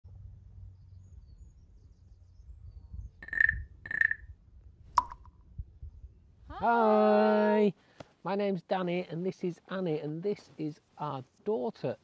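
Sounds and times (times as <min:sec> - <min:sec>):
wind rumbling on microphone: 0:00.1 - 0:06.7
bird calling: 0:03.2 - 0:04.3.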